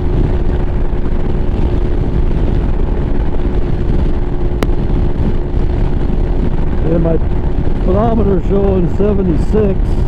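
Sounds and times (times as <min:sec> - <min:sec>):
motorcycle engine drone: 0:00.0 - 0:10.0
road rumble: 0:00.0 - 0:10.0
wind noise: 0:00.0 - 0:10.0.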